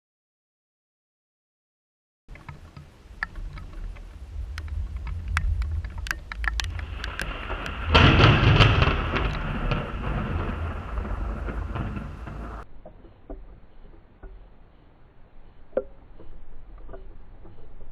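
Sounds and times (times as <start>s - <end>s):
sharp ticks: 2.3s - 17.9s
low thunder rumble: 2.9s - 12.8s
loud thunderclap: 3.2s - 12.6s.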